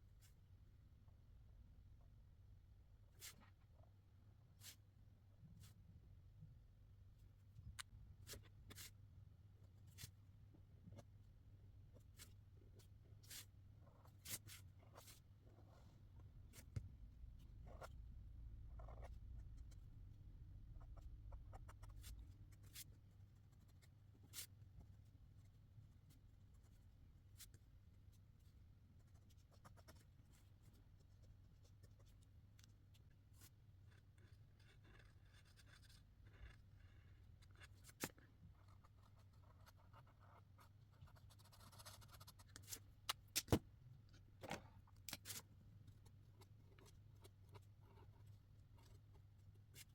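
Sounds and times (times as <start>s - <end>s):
marker scratching on paper: 18.8s - 19.7s, 20.9s - 24.6s, 29.0s - 32.2s, 33.4s - 42.8s.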